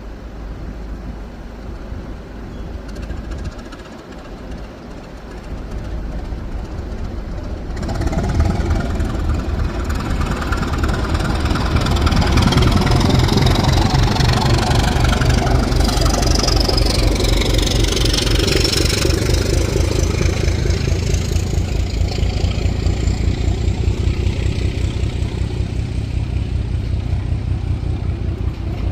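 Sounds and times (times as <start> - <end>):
diesel train engine running: 0.0 - 28.9.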